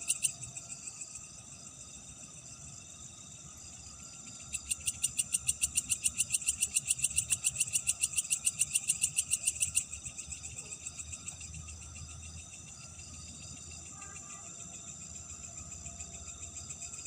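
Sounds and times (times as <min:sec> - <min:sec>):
insects chirping at night: 0:00.0 - 0:17.0
loud pulsing insect trill: 0:00.0 - 0:17.0.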